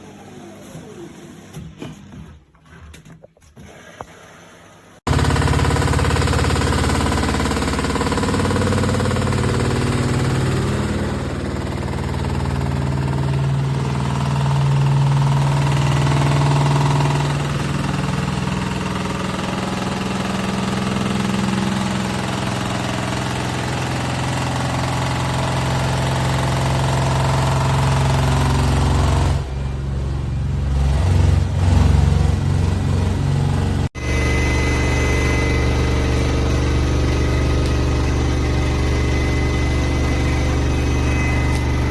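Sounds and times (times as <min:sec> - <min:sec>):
washing machine hum: 0:32.4 - 0:41.9.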